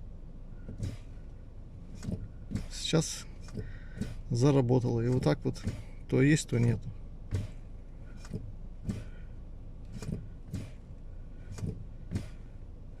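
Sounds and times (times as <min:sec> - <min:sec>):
brake pedal clicks: 0:01.9 - 0:09.2, 0:09.8 - 0:12.5.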